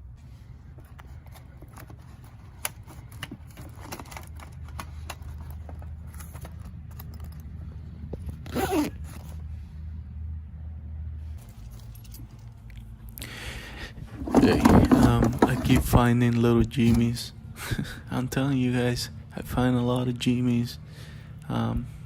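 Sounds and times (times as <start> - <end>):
low steady hum: 0.0 - 22.0
hands handling tools: 0.6 - 9.4, 14.1 - 16.0
scraping rattle: 14.0 - 16.0.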